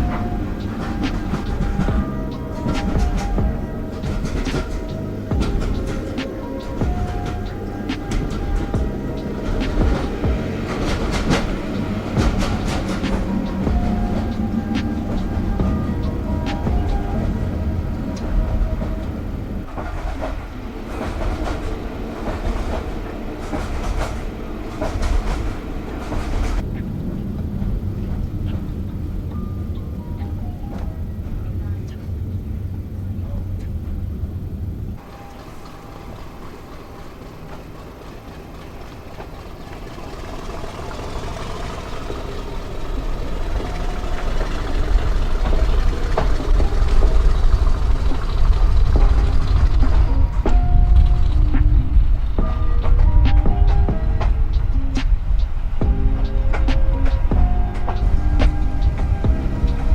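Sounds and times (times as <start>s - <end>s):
train running on track: 0.0s - 59.9s
wheels clattering on rails: 0.0s - 59.9s.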